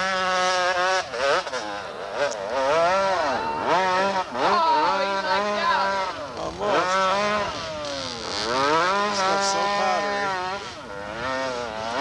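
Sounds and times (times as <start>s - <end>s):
dirt bike engine revving: 0.0s - 12.0s
low engine drone: 0.0s - 12.0s.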